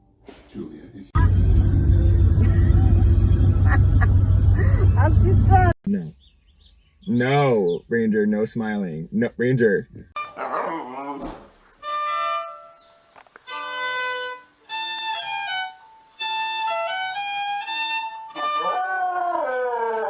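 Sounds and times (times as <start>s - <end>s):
violin playing held notes: 13.4s - 18.7s.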